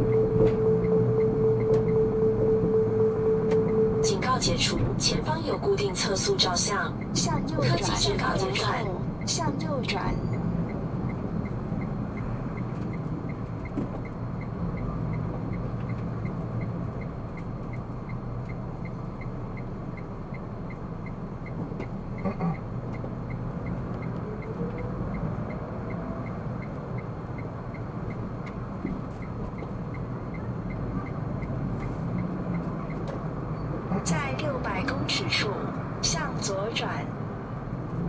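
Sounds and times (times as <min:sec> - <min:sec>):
turn signal ticking: 0:00.0 - 0:04.1, 0:06.2 - 0:36.8
car engine and road noise: 0:00.0 - 0:38.0.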